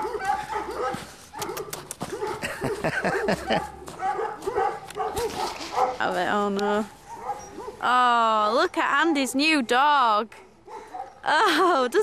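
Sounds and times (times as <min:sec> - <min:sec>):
puppy barking: 0:00.0 - 0:06.1, 0:07.0 - 0:07.8, 0:10.6 - 0:11.2.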